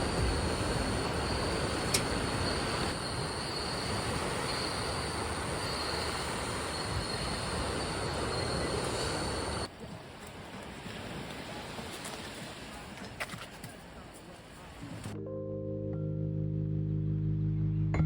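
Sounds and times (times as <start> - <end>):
faint high whine: 0.0 - 9.7.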